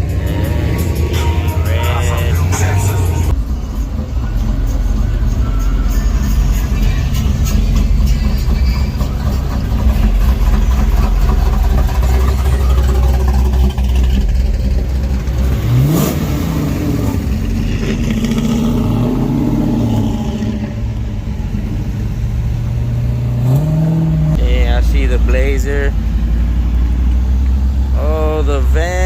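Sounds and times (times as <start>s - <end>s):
pickup truck engines running: 0.0s - 29.0s
truck engine revving: 0.0s - 29.0s.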